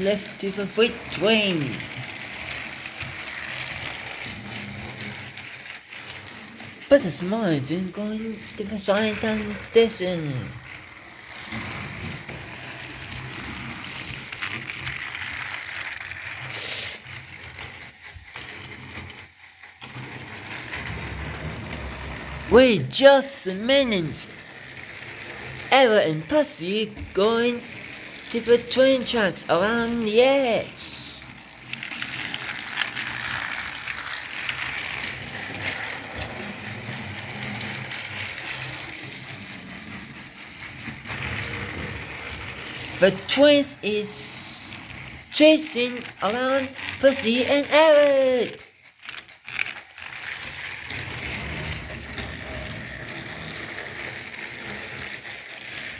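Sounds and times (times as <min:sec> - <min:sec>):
toy train motor whirring: 0:00.0 - 0:55.9.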